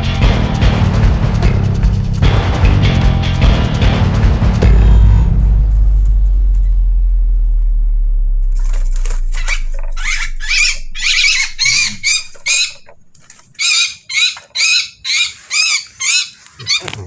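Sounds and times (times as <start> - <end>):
low rumble: 0.0 - 13.3
bird rasping squawks: 9.4 - 17.0.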